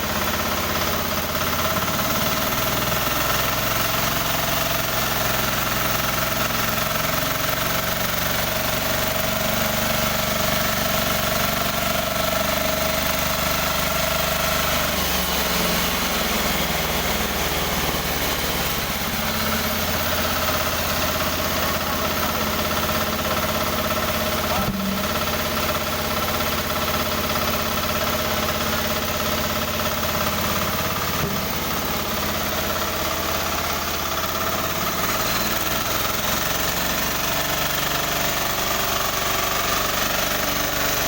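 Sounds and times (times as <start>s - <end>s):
sawmill engine running: 0.0s - 41.0s.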